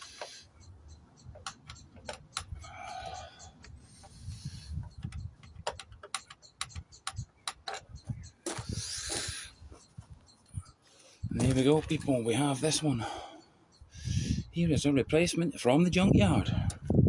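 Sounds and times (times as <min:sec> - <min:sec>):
tools and metal parts clicking: 0:01.2 - 0:10.8.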